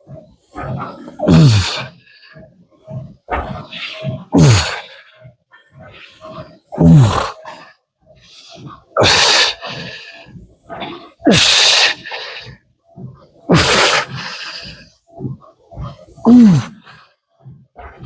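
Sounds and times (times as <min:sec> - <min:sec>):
man grunting: 0:01.2 - 0:01.8, 0:04.3 - 0:04.8, 0:06.8 - 0:07.4, 0:13.5 - 0:14.1, 0:16.2 - 0:16.8.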